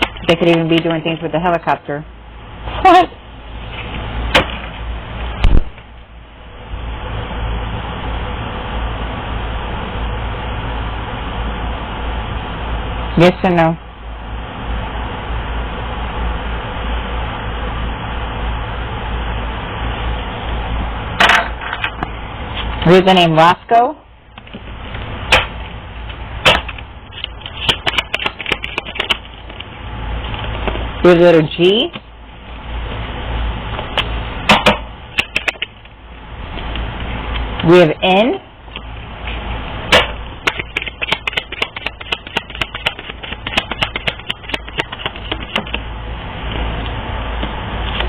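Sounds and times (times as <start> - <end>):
low steady hum: 0.0 - 48.0
cards clicking and tapping on table: 40.5 - 45.8.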